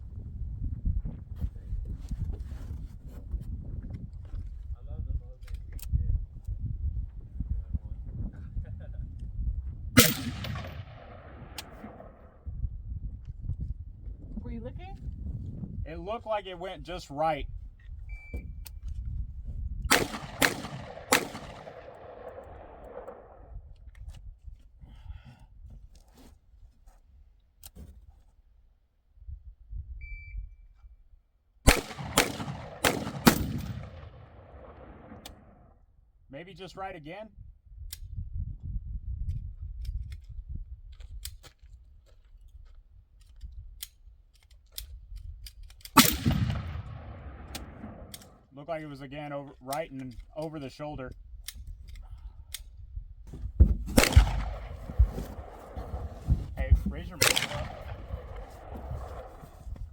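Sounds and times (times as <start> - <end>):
wind rumble on microphone: 0.0 - 26.7, 29.1 - 31.1, 37.2 - 48.5, 50.1 - 59.9
rifle shots: 10.0 - 12.3, 19.9 - 23.4, 31.7 - 35.5, 46.0 - 48.4, 53.9 - 59.6
rolling echo: 10.0 - 12.4, 19.9 - 23.5, 31.7 - 35.5, 46.0 - 48.4, 53.9 - 59.7.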